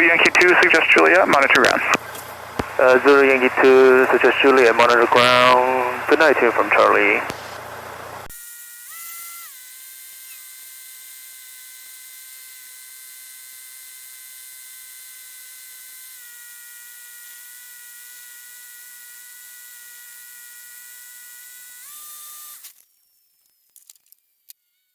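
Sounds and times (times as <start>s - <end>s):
electrical whine in intercom audio: 0.0s - 8.3s.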